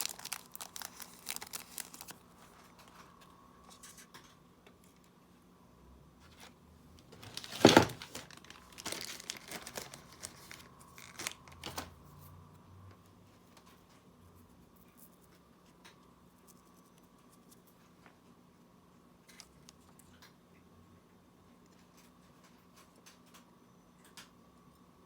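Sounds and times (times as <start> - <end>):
plastic crinkling and tearing: 0.0 - 3.0, 7.1 - 12.0.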